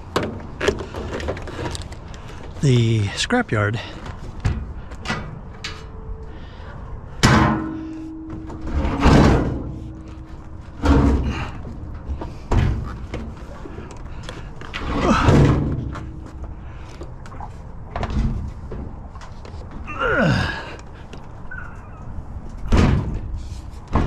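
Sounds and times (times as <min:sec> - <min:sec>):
heavy scrap banging and thudding: 0:07.1 - 0:13.6.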